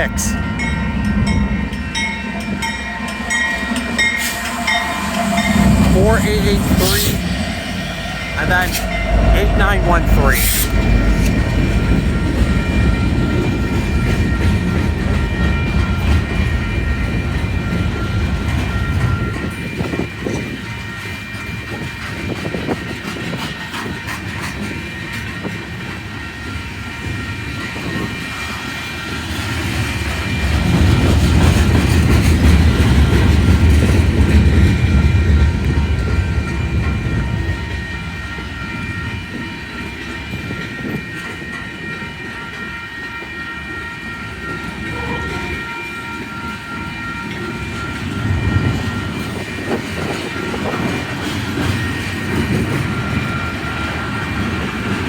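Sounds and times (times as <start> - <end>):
crossing signal bell ringing: 0.0 - 29.6, 30.2 - 55.0
train wheels clacking over rails: 10.3 - 38.6, 47.3 - 55.0.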